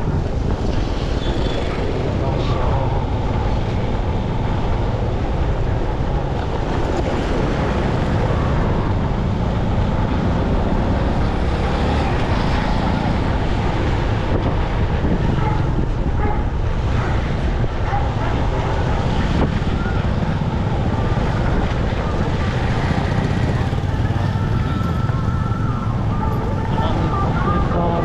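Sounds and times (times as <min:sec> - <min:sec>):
motorcycle engine and road noise: 0:00.0 - 0:28.0
wind buffeting microphone: 0:00.0 - 0:28.0.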